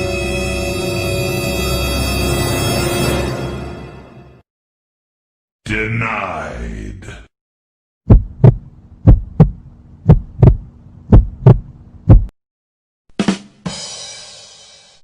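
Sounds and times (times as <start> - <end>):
heartbeat thumps: 8.0 - 12.4
faint steady hum: 8.4 - 12.3.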